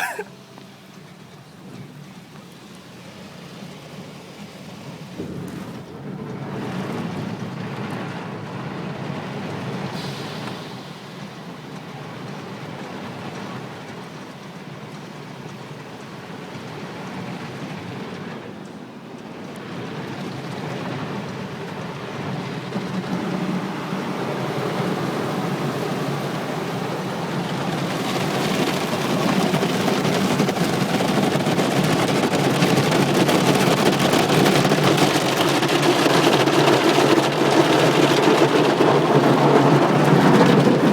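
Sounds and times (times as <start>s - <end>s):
car wash water spray rushing: 22.2s - 40.9s.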